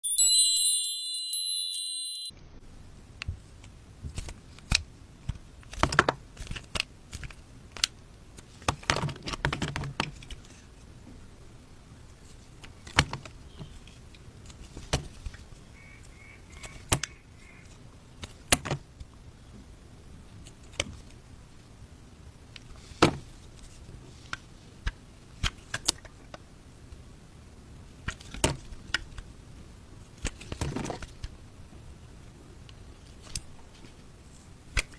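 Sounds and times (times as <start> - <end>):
high chiming tones: 0.0 - 2.4.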